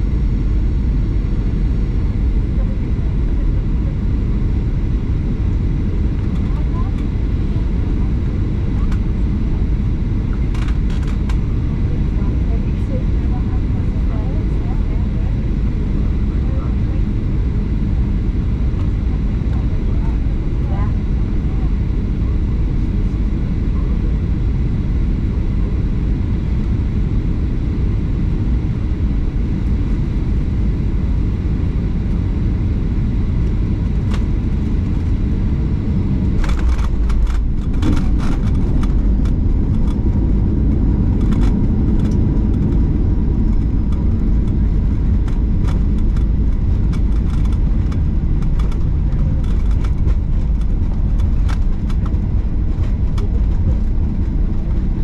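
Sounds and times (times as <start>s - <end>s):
airliner engine and airflow rumble: 0.0s - 55.0s
sharp clicks and rattles: 10.5s - 11.4s, 36.4s - 40.2s, 41.1s - 54.4s.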